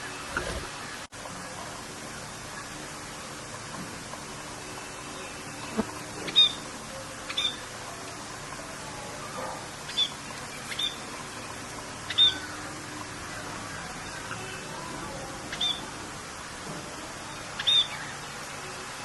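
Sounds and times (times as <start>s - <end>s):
rain hissing: 0.0s - 19.0s
bird chirping: 5.1s - 6.6s, 7.3s - 7.6s, 9.9s - 11.2s, 12.0s - 12.6s, 15.5s - 15.9s, 17.6s - 18.2s.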